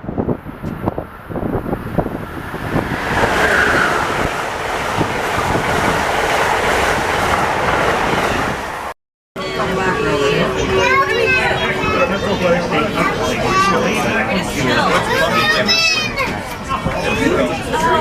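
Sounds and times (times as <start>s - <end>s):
train rushing noise: 0.0s - 13.9s.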